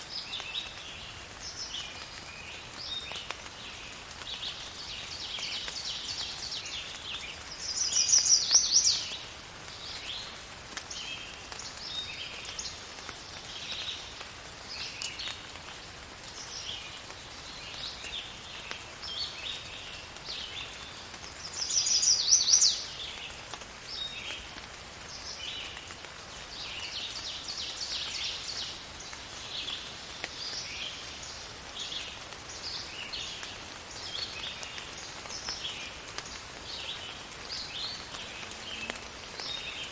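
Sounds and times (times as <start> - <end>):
faint rain hiss: 0.0 - 39.9
songbirds chirping and singing: 4.3 - 10.3, 16.4 - 23.3.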